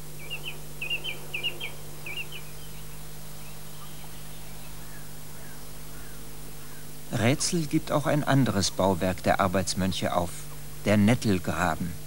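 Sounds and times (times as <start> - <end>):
small bird chirping: 0.0 - 7.0
steady low hum: 0.0 - 12.0.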